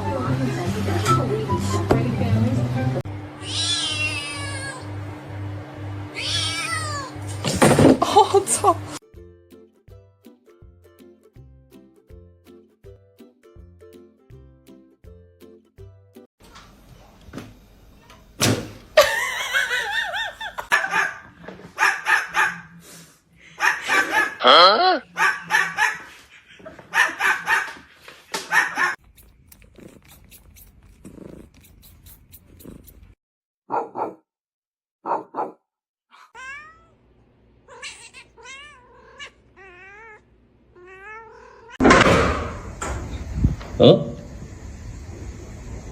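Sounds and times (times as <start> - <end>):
cat meowing: 3.4 - 4.9, 6.1 - 7.2, 36.1 - 37.0, 37.7 - 41.8
dog whining: 6.3 - 7.3
thump: 18.4 - 18.8, 41.8 - 43.1
dog yipping and barking: 20.7 - 22.7, 23.6 - 24.4, 25.1 - 27.8, 28.4 - 29.0, 33.7 - 34.2, 35.0 - 35.6.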